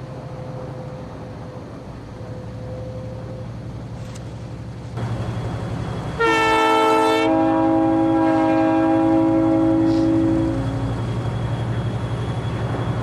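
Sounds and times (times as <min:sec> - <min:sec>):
diesel locomotive rumble: 0:00.0 - 0:13.0
train air horn chord: 0:06.2 - 0:10.9.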